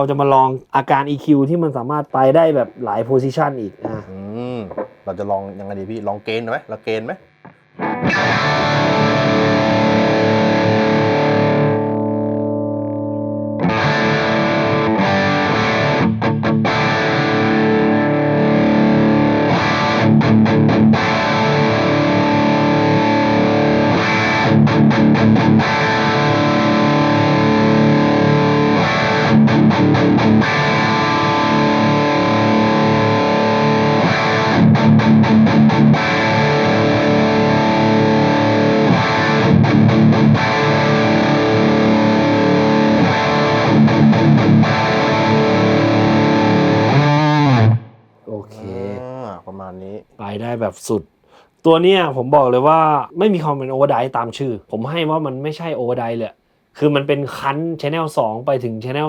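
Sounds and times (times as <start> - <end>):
distorted electric guitar power chords: 2.4 - 48.1.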